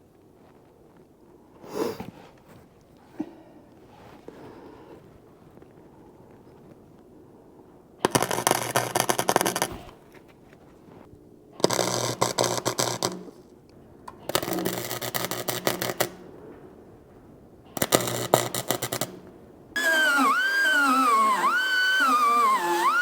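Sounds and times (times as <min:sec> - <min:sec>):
welder crackling: 0:11.6 - 0:13.3, 0:14.1 - 0:16.2, 0:17.8 - 0:23.0
low transformer hum: 0:19.8 - 0:23.0.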